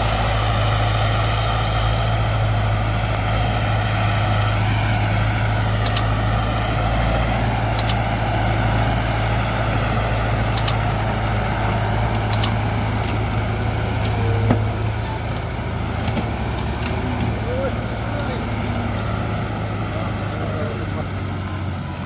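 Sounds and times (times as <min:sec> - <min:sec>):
heavy diesel engine drone: 0:00.0 - 0:22.0
sharp double clicks: 0:05.8 - 0:06.2, 0:07.7 - 0:08.1, 0:10.5 - 0:10.8, 0:12.2 - 0:12.6.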